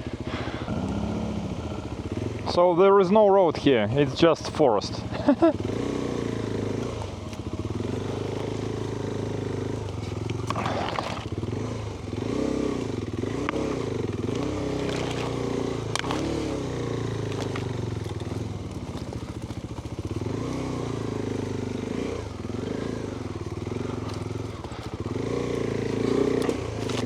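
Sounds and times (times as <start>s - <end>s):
motorcycle engine revving: 0.0s - 27.0s
clicks and clatter from bike: 6.6s - 27.0s.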